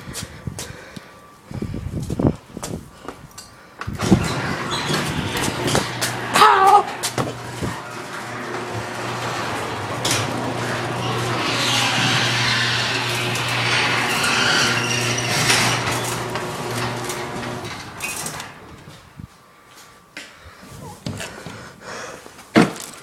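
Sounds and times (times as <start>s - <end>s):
garage door rattling: 3.9s - 19.0s
garage door opener motor hum: 4.0s - 19.0s.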